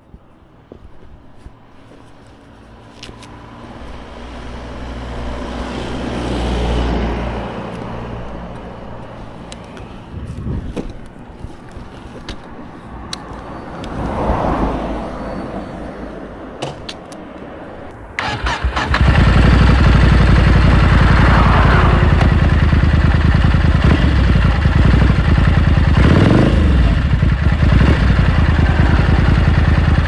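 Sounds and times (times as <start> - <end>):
motorcycle engine running: 18.0 - 30.0.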